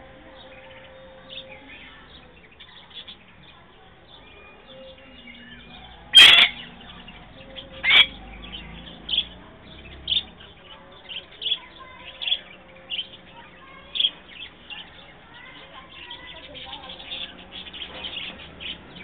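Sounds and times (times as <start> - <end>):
bird chirping: 0.0 - 19.0
loud sharp bird call: 4.4 - 9.4.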